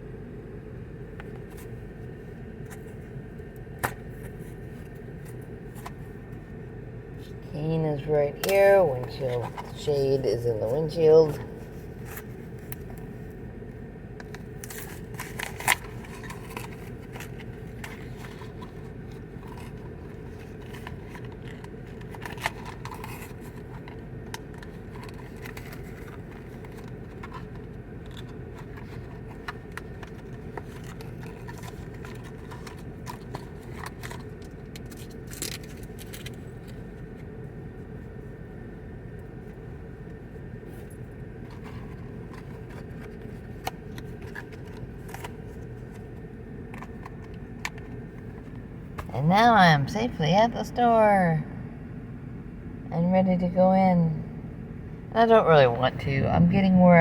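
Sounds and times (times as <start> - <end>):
low hum inside car: 0.0 - 57.0
clicks and rustles of handling: 1.0 - 7.4, 8.4 - 49.2.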